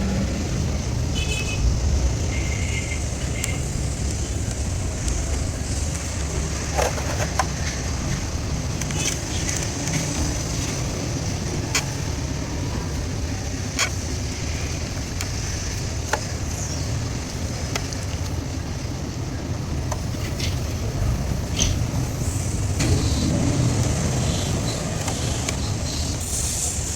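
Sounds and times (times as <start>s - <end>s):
truck engine rumbling: 0.0s - 26.9s
sharp clicks and knocks: 6.7s - 10.9s.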